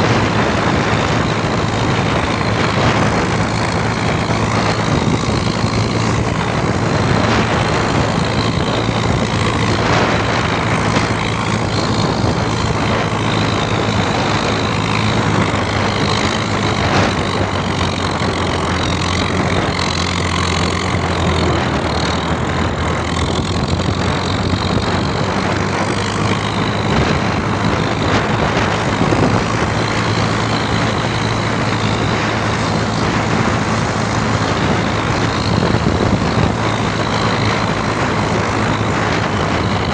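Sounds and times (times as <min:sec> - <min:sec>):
rushing wind noise: 0:00.0 - 0:39.9
tractor engine running: 0:00.0 - 0:39.9.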